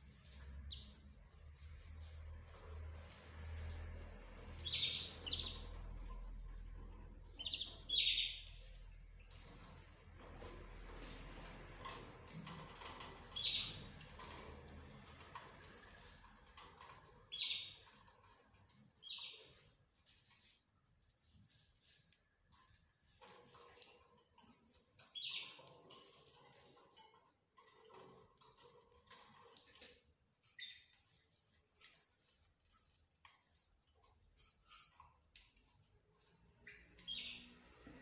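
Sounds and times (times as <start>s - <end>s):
birds chirping: 0.2s - 3.2s, 4.3s - 10.0s, 12.4s - 14.5s, 17.2s - 18.0s, 18.6s - 19.7s, 25.0s - 26.8s, 30.4s - 31.2s, 36.5s - 38.0s.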